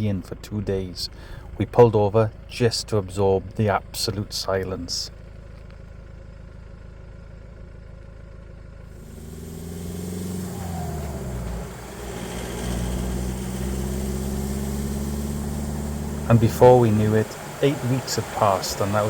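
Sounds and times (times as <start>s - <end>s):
truck engine accelerating: 8.7s - 19.0s.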